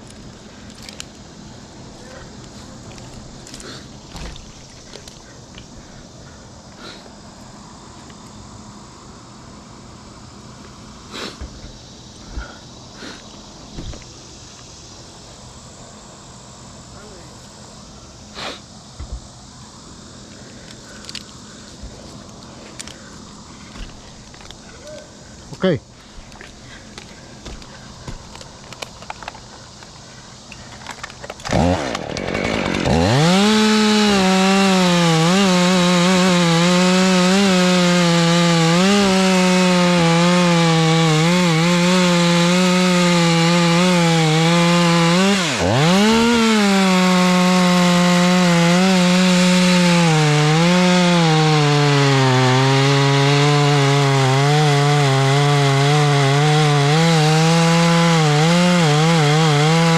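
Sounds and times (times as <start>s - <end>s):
chainsaw cutting wood: 0.0s - 5.9s, 20.1s - 24.7s, 26.1s - 59.9s.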